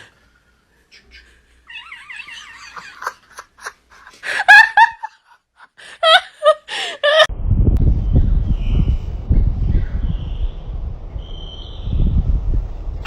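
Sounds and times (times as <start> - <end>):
low rumbling wind noise: 7.3 - 13.0.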